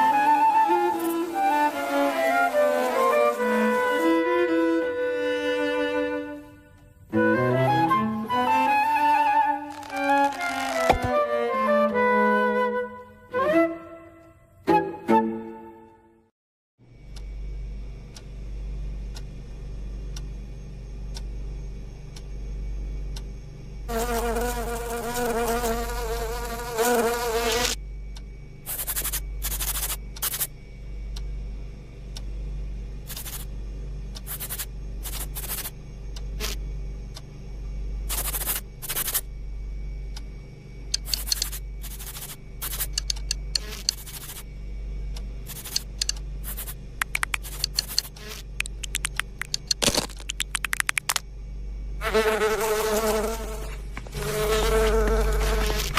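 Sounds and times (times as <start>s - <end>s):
cartoon insect wings buzzing: 0.0s - 4.2s, 9.5s - 11.1s, 23.9s - 27.8s, 28.7s - 30.5s, 33.1s - 33.5s, 34.2s - 35.7s, 38.1s - 39.3s, 41.0s - 44.5s, 45.4s - 51.2s, 52.0s - 55.9s.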